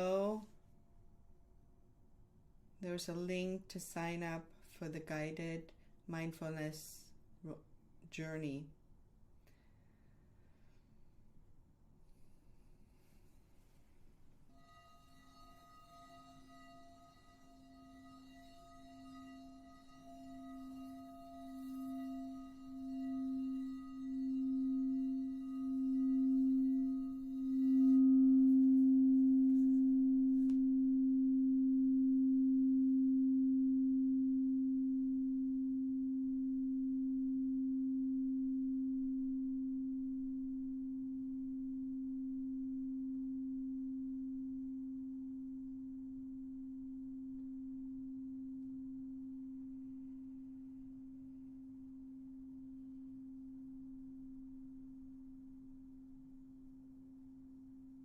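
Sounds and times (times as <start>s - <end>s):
singing bowl ringing: 14.5s - 56.3s.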